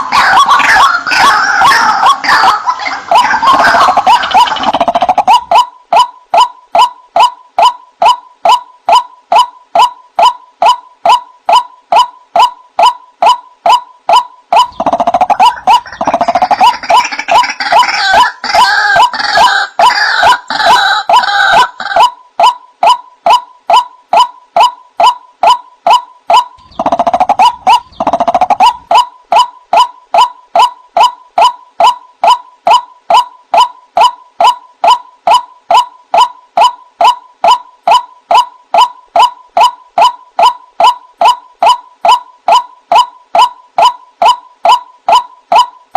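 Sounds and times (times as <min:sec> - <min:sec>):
waterhen calling: 0:00.0 - 0:24.3, 0:25.4 - 0:32.4
overlapping harsh bird calls: 0:00.0 - 0:45.7.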